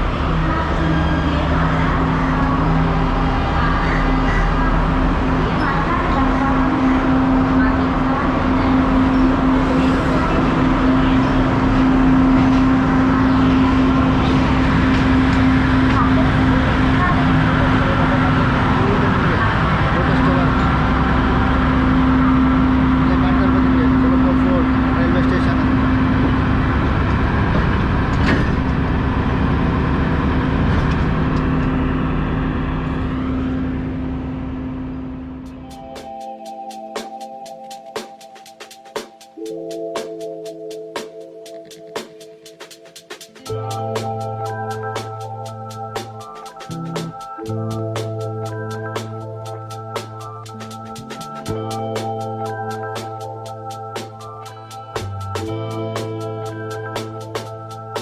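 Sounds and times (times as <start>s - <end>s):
train rumbling inside carriage: 0.0s - 35.5s.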